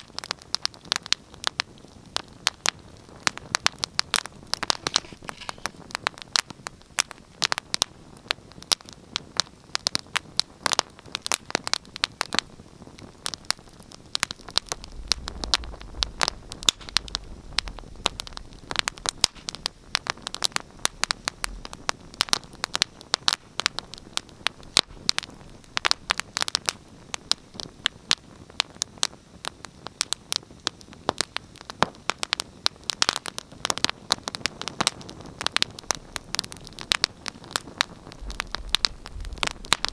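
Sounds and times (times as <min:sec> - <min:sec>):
wood fire crackling: 0:00.0 - 0:39.9
low rumble: 0:13.4 - 0:22.1, 0:37.9 - 0:39.9.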